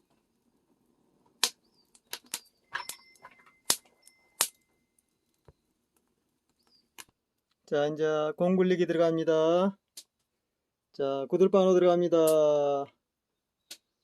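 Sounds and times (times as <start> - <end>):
sharp snaps and pops: 0.0 - 7.8, 9.8 - 11.0, 12.2 - 12.6, 13.6 - 14.0
faint thin whistle: 1.6 - 5.7.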